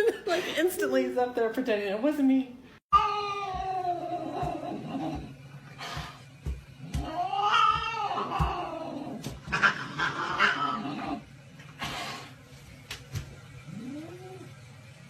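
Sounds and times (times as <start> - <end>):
cat yowling: 2.9 - 5.3, 7.0 - 11.2.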